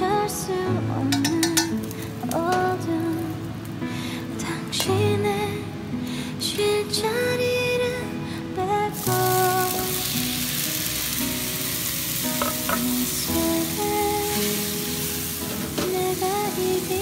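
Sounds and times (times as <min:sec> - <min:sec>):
soft music: 0:00.0 - 0:17.0
chopsticks clicking on pan: 0:01.1 - 0:01.7, 0:12.4 - 0:12.9
tomato sizzling in hot oil: 0:01.2 - 0:03.7, 0:09.0 - 0:17.0.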